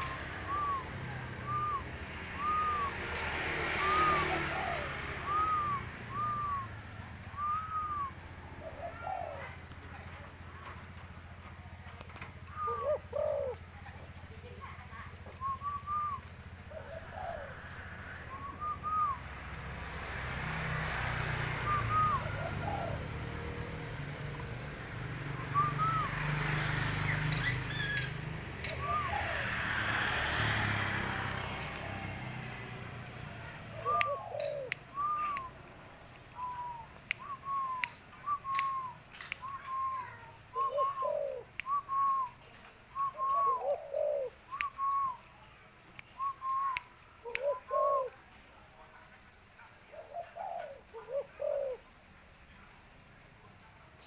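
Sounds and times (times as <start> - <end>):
dove cooing: 0.0 - 6.8, 7.4 - 10.9, 11.6 - 19.8, 21.2 - 31.8, 33.4 - 35.4, 36.3 - 42.4, 43.0 - 45.1, 46.2 - 48.3, 49.8 - 51.9
sharp clicks: 36.1 - 39.8.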